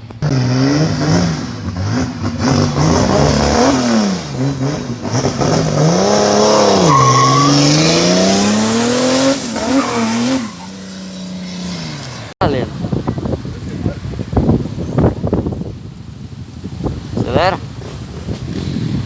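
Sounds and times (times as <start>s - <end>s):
car engine revving: 0.0s - 12.4s
tyres squealing: 1.0s - 12.2s.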